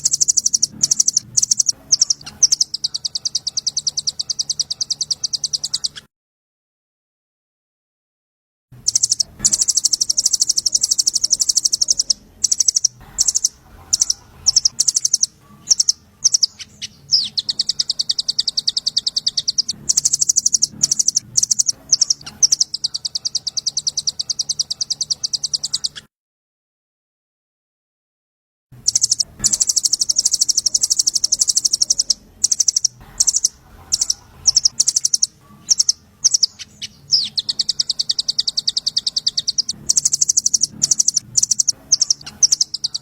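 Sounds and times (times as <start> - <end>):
songbird high fast trill: 0.0 - 6.0, 8.8 - 26.0, 28.8 - 43.0.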